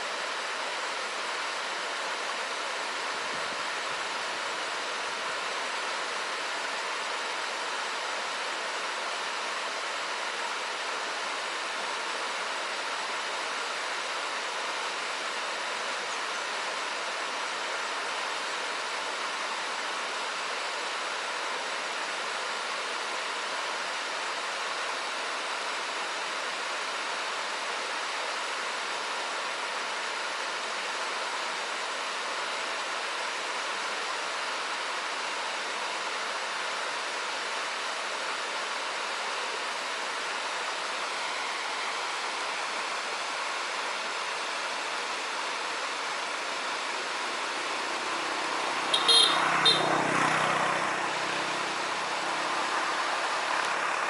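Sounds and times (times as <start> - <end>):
flowing river water: 0.0 - 54.0
motor vehicle passing: 47.7 - 54.0.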